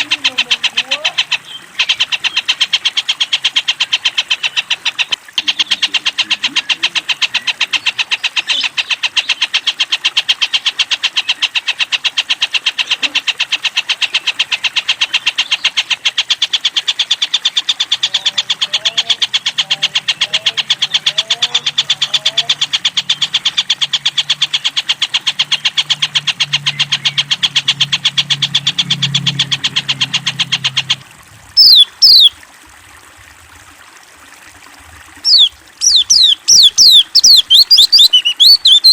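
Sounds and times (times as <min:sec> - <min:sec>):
kingfisher rattling trill: 0:31.6 - 0:32.3, 0:35.2 - 0:38.9.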